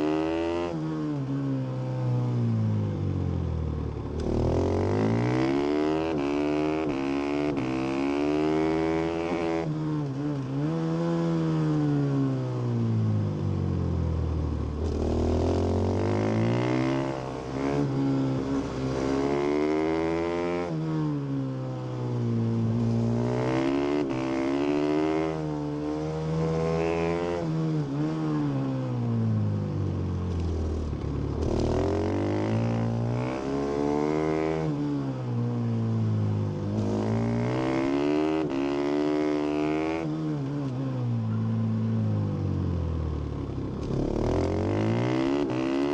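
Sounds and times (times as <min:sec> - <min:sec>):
motorcycle engine revving: 0:04.0 - 0:12.2, 0:14.3 - 0:21.3, 0:22.4 - 0:29.4, 0:30.2 - 0:35.4, 0:36.6 - 0:41.4, 0:42.6 - 0:45.9.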